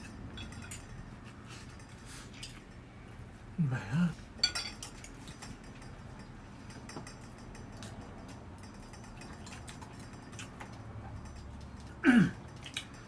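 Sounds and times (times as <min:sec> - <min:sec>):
low room hum: 0:00.0 - 0:13.0
tableware clicking against dishes: 0:04.4 - 0:13.0.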